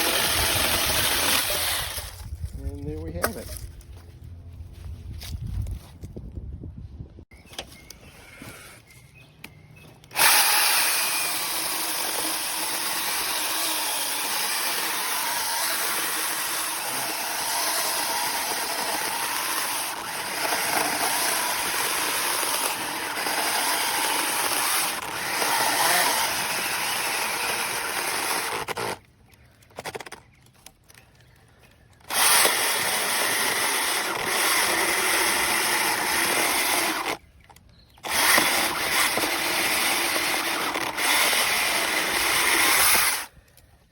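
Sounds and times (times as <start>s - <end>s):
mini chainsaw running: 0.0s - 2.3s, 10.1s - 29.0s, 32.0s - 37.2s, 38.0s - 43.4s.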